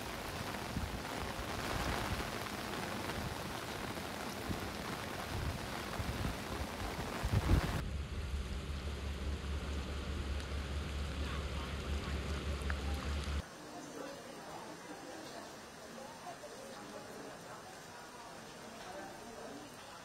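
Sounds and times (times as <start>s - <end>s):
heavy rain pouring: 0.0s - 20.0s
steady low hum: 7.4s - 13.4s.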